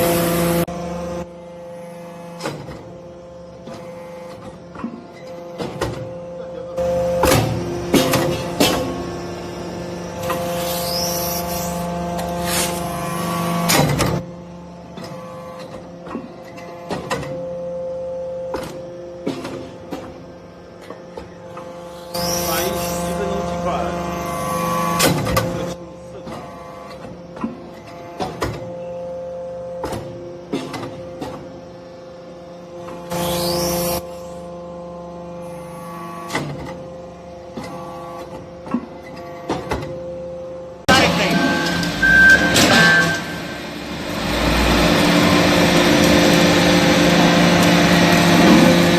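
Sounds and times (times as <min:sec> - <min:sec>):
motor and pump hum: 0:00.0 - 0:48.9
short machine clanks: 0:41.2 - 0:46.4.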